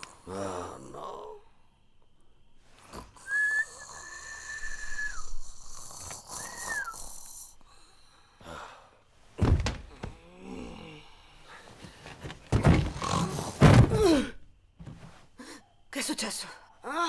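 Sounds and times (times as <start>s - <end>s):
whistle: 3.2s - 7.4s
heavy thud: 9.4s - 10.2s, 12.2s - 15.1s.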